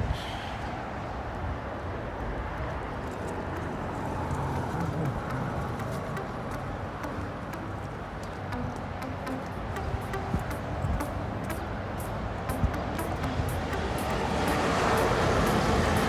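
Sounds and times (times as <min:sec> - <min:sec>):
faint ticks: 0:03.3 - 0:16.0.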